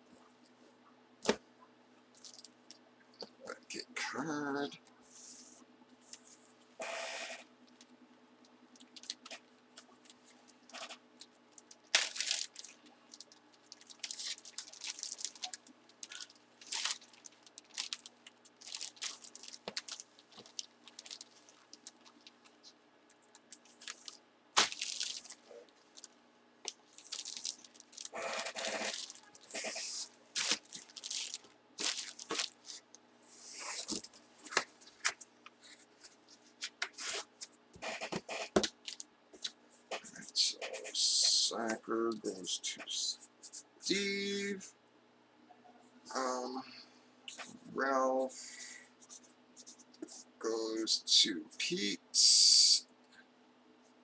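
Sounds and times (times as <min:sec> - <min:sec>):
plastic packaging crinkling: 0:02.1 - 0:02.8, 0:08.7 - 0:32.9, 0:33.5 - 0:37.5, 0:38.6 - 0:39.1.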